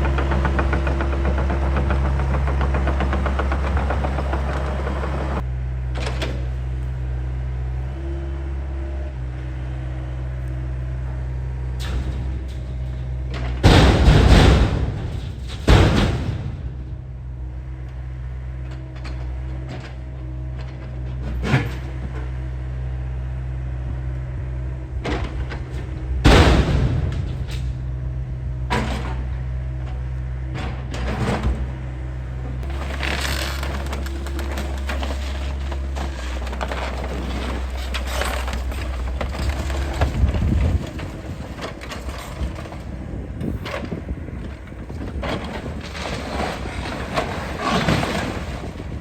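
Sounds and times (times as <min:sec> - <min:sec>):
excavator digging crash and scrape: 0:00.0 - 0:05.4, 0:11.6 - 0:17.2, 0:18.7 - 0:22.3, 0:24.8 - 0:31.8, 0:32.6 - 0:49.0
excavator diesel engine running: 0:00.0 - 0:49.0
loud crash: 0:13.6 - 0:17.0, 0:26.2 - 0:27.9.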